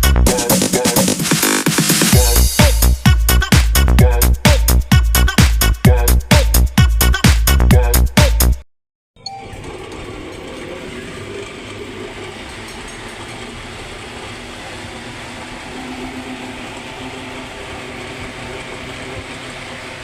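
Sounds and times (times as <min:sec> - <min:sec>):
electric fan running: 0:09.5 - 0:20.0.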